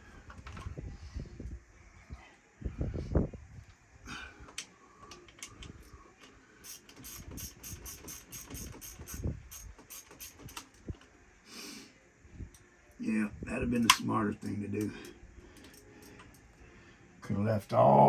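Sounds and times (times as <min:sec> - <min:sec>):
ratchet wrench clicking: 0:06.6 - 0:10.6.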